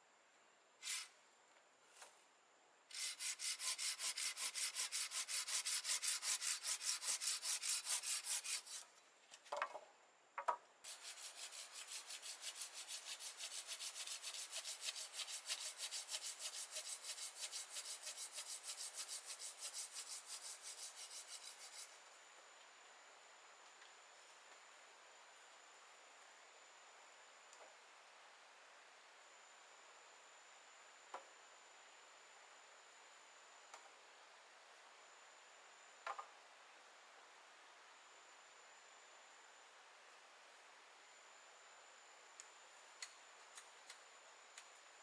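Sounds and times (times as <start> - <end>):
back-and-forth scraping strokes: 0.8 - 1.1, 2.9 - 9.0, 10.9 - 22.0.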